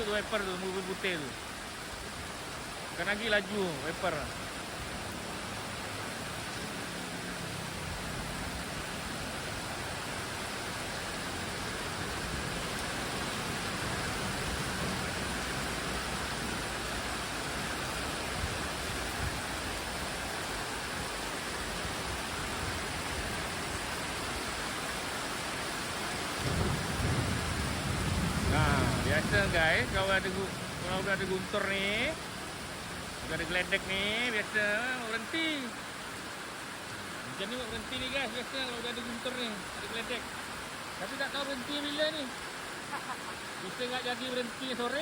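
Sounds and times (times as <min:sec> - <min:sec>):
heavy rain pouring: 0:00.0 - 0:45.0
low thunder rumble: 0:26.3 - 0:31.3.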